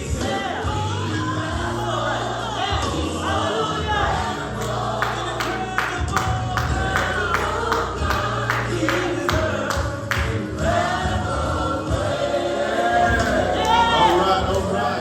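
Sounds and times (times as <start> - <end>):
gospel choir singing: 0.0 - 15.0.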